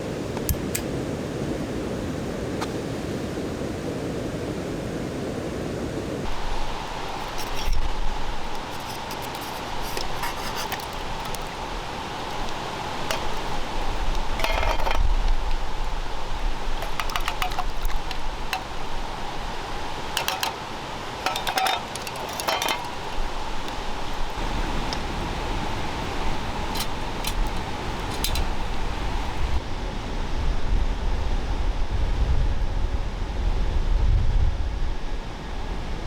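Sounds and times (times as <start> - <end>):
steady background hiss: 0.0 - 36.0
metal cookware clinking: 12.3 - 13.6, 14.2 - 15.1, 16.8 - 18.8, 20.1 - 23.5, 26.6 - 28.8.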